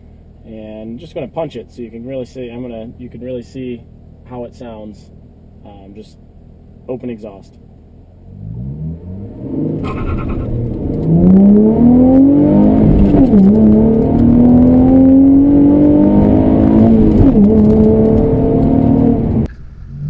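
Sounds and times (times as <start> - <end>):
car engine revving hard: 8.2 - 20.0.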